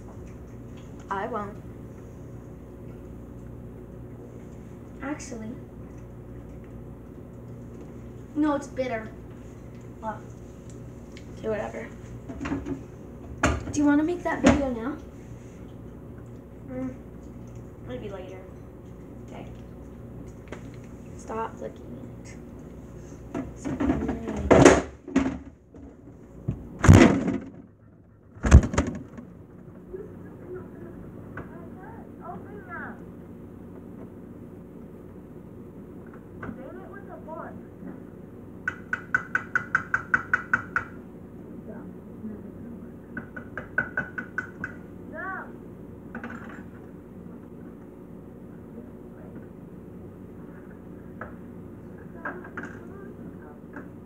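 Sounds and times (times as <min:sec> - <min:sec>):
refrigerator hum: 0:00.0 - 0:54.0
fridge containers bumping and rattling: 0:23.4 - 0:25.6, 0:26.5 - 0:27.7, 0:28.4 - 0:29.4.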